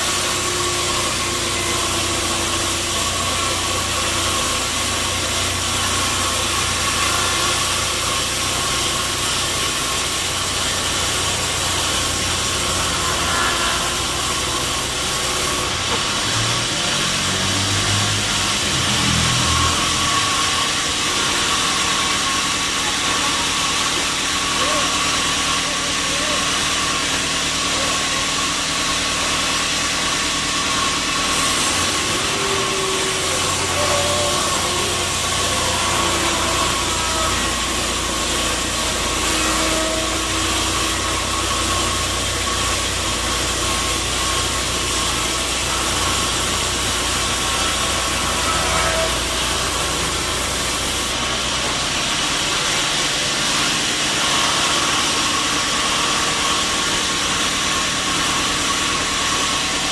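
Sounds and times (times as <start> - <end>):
saw whining: 0.0 - 59.9.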